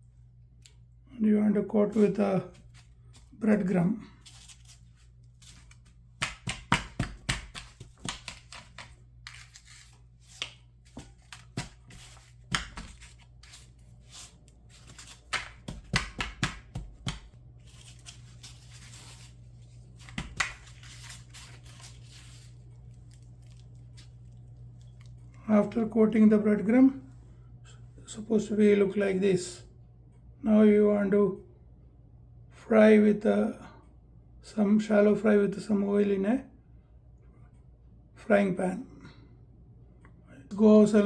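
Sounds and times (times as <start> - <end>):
breadcrumbs crunching and rustling: 4.0 - 25.4.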